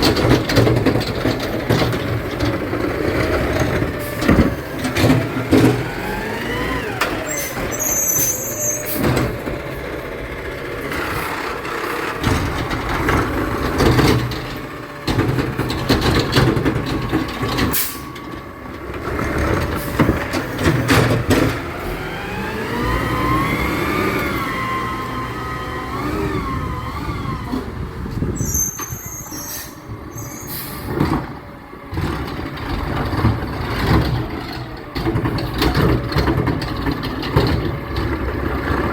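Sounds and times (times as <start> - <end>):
diesel engine revving: 0.0 - 38.9
air brake hiss: 28.5 - 30.9.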